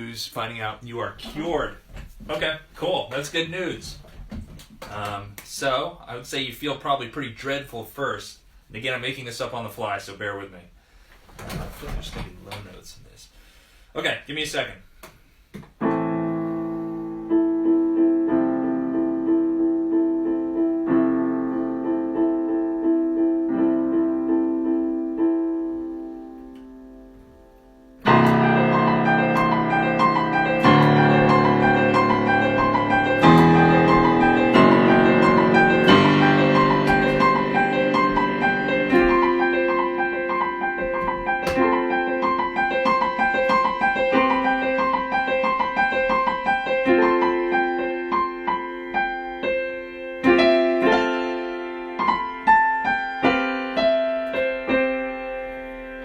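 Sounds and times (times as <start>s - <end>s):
solo piano: 15.8s - 56.0s.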